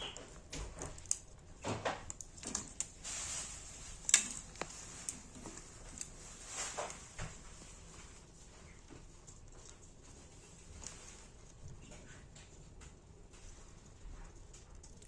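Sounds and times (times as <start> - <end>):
light clicks and rustles: 0.0 - 15.0.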